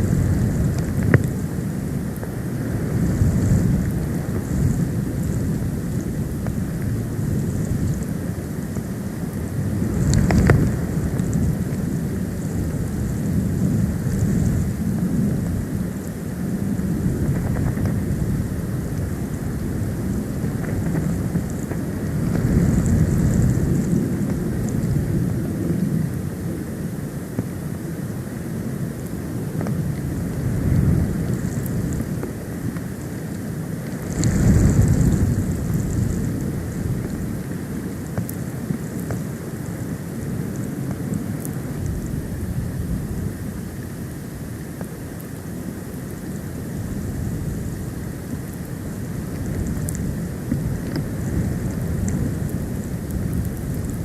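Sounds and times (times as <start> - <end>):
wind buffeting microphone: 0.0 - 54.0
faint ticks: 0.6 - 1.4, 17.2 - 18.2, 20.3 - 24.9, 29.0 - 39.3, 48.5 - 54.0.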